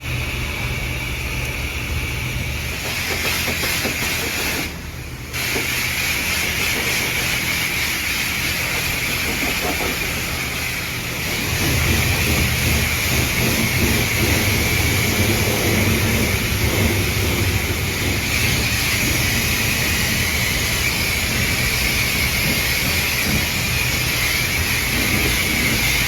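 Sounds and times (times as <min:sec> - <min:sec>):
truck engine humming: 0:00.0 - 0:26.0.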